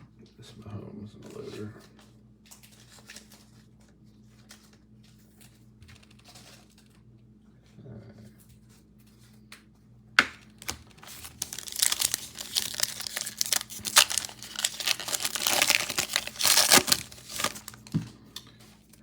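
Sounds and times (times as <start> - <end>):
wrapper tearing and crinkling: 10.5 - 18.0.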